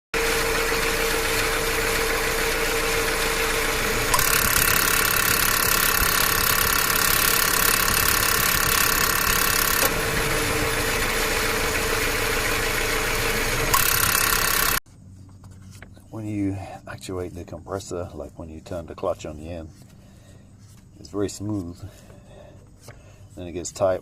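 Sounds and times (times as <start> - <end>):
car engine running: 0.2 - 14.8.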